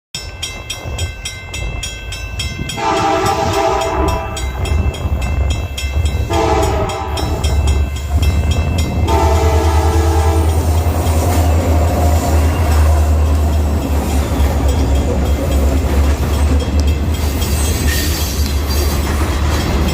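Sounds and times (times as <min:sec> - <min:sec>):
crossing bell ringing: 0:00.1 - 0:19.9
locomotive engine rumble: 0:00.3 - 0:19.9
train horn blasts: 0:02.7 - 0:04.6, 0:06.3 - 0:07.4, 0:09.0 - 0:10.8.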